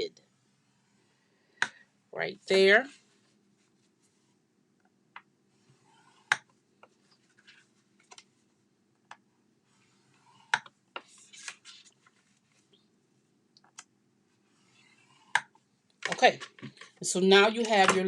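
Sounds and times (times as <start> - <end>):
paper rustling: 6.9 - 8.4, 11.0 - 12.8.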